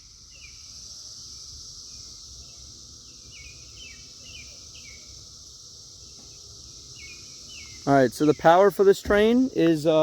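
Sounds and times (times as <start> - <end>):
cicadas buzzing: 0.0 - 10.0
bird chirping: 1.9 - 5.1, 6.1 - 10.0.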